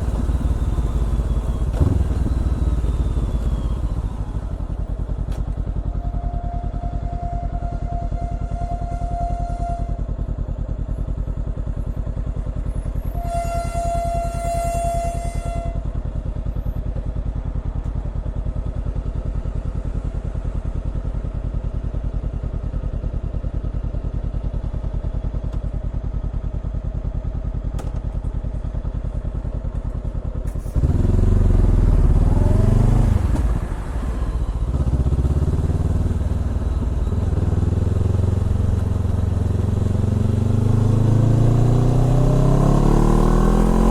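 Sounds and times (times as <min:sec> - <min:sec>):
motorcycle engine revving: 0:00.0 - 0:06.1, 0:30.5 - 0:43.9.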